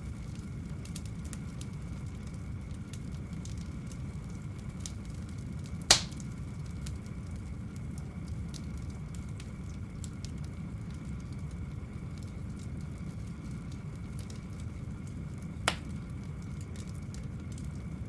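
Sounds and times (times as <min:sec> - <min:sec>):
wood fire crackling: 0:00.0 - 0:18.0
loud sharp crack: 0:05.9 - 0:06.2, 0:15.7 - 0:15.9.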